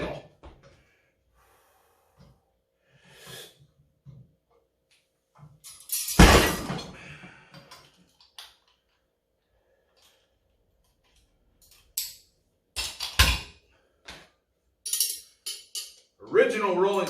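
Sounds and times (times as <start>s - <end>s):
weight plates crashing on floor: 6.0s - 7.0s.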